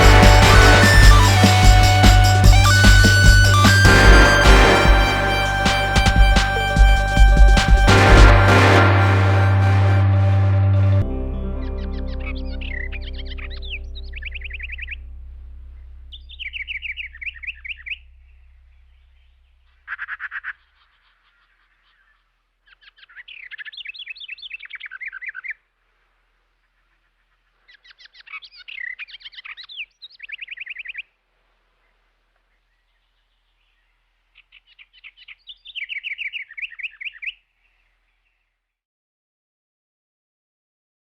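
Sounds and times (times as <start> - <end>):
songbird trilling and chirping: 33.6 - 37.4.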